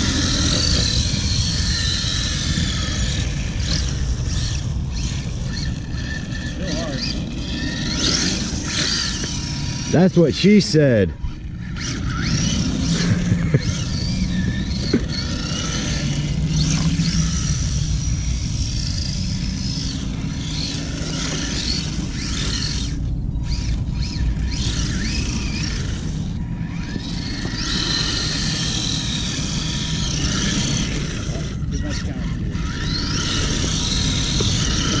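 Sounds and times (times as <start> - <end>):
electric motor whine: 0.0 - 35.0.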